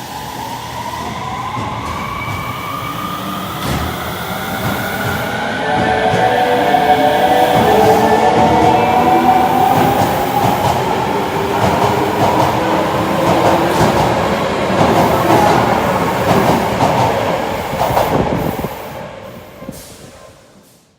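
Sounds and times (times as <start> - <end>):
subway train running: 0.0 - 20.9.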